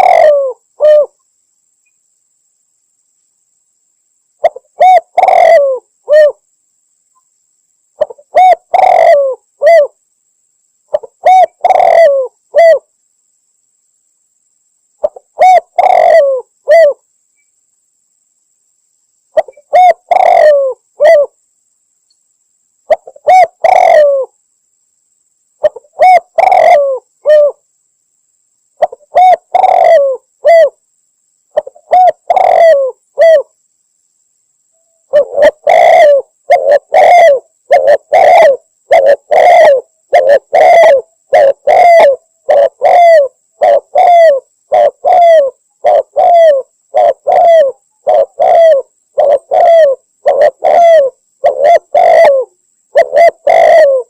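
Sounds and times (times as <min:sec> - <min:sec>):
dove cooing: 0:00.0 - 0:01.2, 0:04.4 - 0:06.4, 0:08.0 - 0:10.0, 0:10.9 - 0:12.9, 0:15.0 - 0:17.0, 0:19.4 - 0:21.4, 0:22.9 - 0:24.4, 0:25.6 - 0:27.6, 0:28.8 - 0:30.8, 0:31.6 - 0:33.5, 0:35.1 - 0:54.0.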